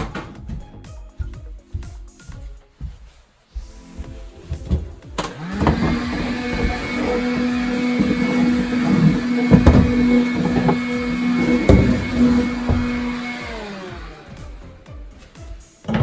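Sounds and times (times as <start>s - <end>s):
knocks: 4.6s - 13.6s
electric motor spinning: 5.2s - 14.8s.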